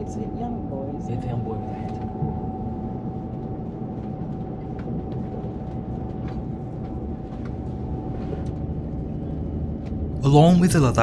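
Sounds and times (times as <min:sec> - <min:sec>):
mid-pitched whine: 0:00.0 - 0:11.0
railcar cabin rumble: 0:00.0 - 0:11.0.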